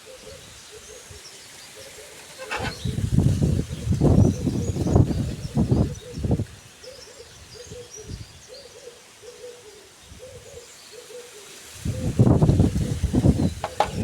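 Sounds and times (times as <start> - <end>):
other birds chirping: 0.0 - 14.0.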